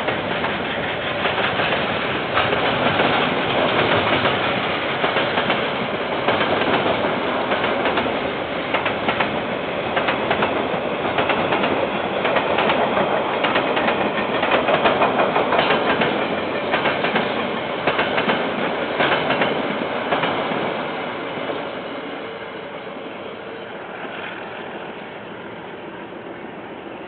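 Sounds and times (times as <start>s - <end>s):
wheels clacking over rail joints: 0.0s - 20.7s
train wagons rolling past: 0.0s - 27.0s.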